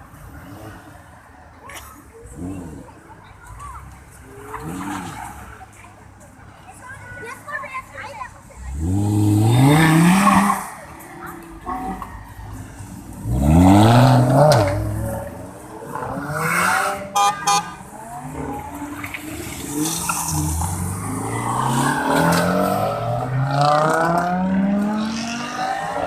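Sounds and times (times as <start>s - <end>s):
car engine revving and upshifting: 8.6s - 26.0s
car horn beeps: 17.0s - 17.8s.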